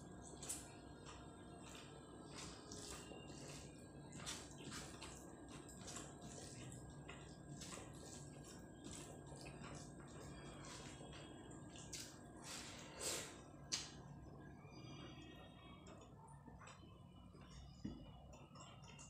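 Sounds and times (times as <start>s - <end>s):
person chewing food: 0.0s - 14.0s
low steady background hum: 0.0s - 19.0s.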